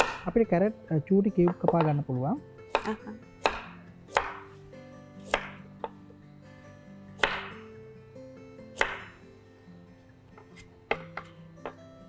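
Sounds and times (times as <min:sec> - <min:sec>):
knife chopping carrot: 0:00.0 - 0:00.4, 0:02.7 - 0:04.5, 0:05.2 - 0:05.7, 0:07.2 - 0:07.6, 0:08.8 - 0:09.2.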